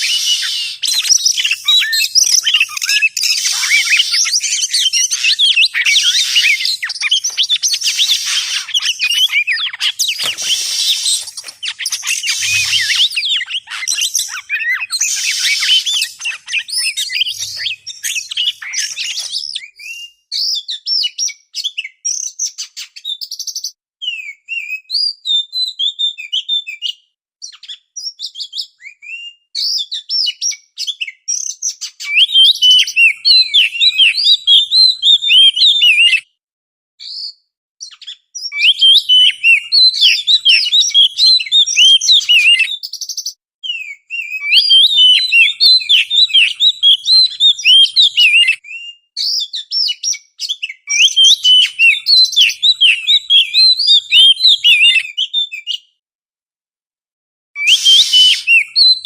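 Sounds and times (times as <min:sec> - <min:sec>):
songbird singing whistled phrases: 0:00.0 - 0:36.3, 0:37.0 - 0:55.9, 0:57.6 - 0:59.0
harsh buzzy bird notes: 0:05.8 - 0:13.7, 0:14.4 - 0:19.3.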